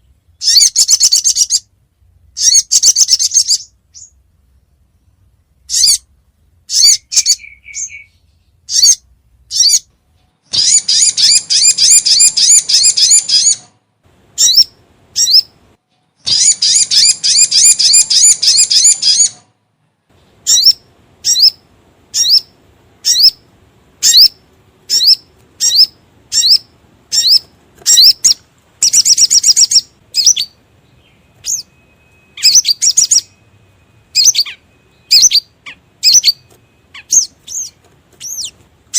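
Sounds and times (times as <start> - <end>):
bird chirping and trilling: 0.0 - 1.7, 2.3 - 4.2, 4.9 - 6.1, 6.7 - 9.9, 10.5 - 13.8, 14.4 - 15.6, 16.2 - 19.5, 20.2 - 38.6.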